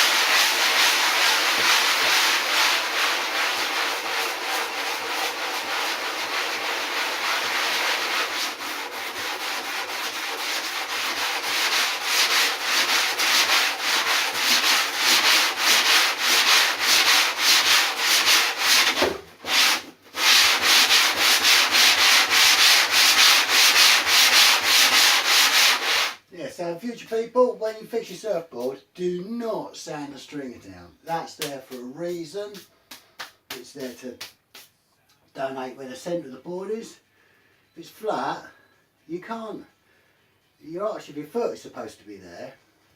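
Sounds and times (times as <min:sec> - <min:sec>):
sandpaper rubbing back and forth: 0:00.0 - 0:26.2.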